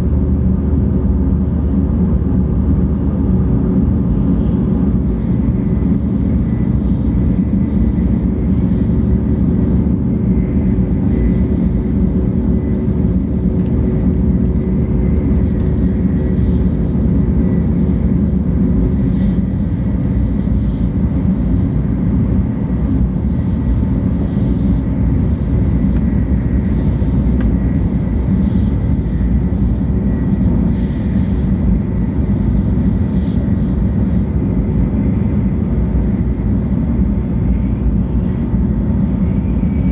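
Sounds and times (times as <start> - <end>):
train running rumble: 0.0 - 39.9.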